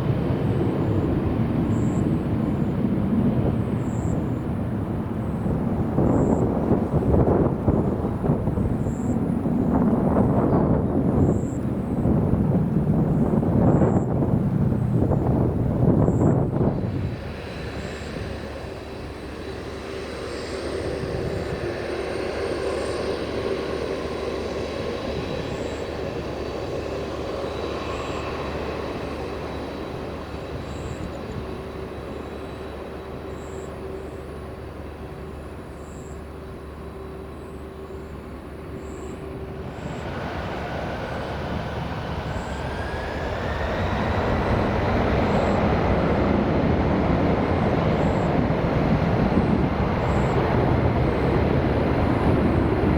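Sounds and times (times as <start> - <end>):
jet engine whine: 0.0 - 52.9
jet whine rising in pitch: 15.3 - 52.9.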